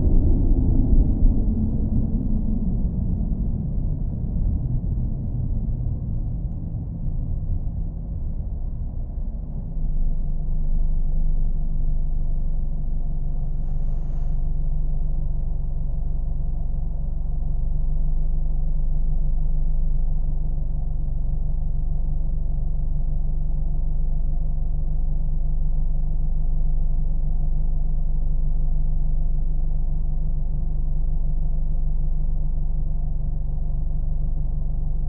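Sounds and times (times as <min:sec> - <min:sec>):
car engine rumbling: 0:00.0 - 0:24.2.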